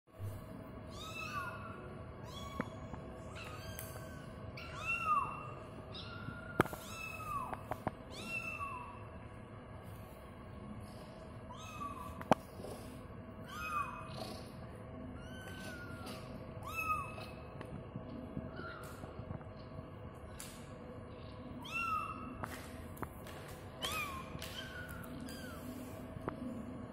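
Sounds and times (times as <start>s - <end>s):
kitten meowing: 0.9s - 9.0s, 15.2s - 17.4s.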